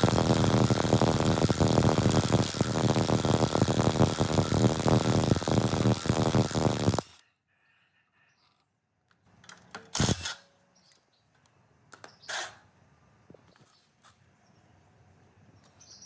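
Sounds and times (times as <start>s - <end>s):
generator engine running: 0.0s - 7.1s.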